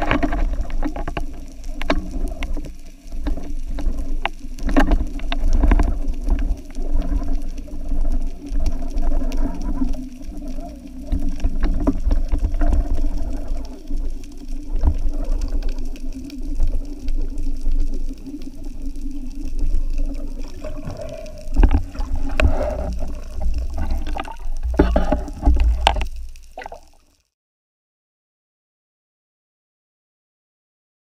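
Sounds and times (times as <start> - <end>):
underwater rumbling water: 0.0 - 27.2.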